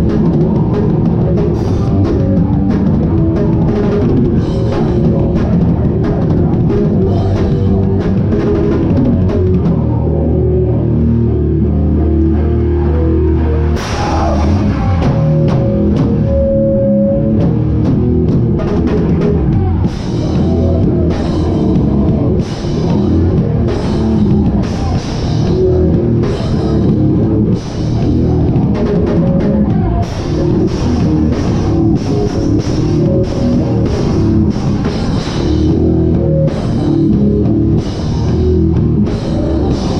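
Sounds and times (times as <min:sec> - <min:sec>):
drums and cymbals: 0:00.0 - 0:10.1, 0:13.8 - 0:39.9
distorted guitar and bass: 0:00.0 - 0:39.9.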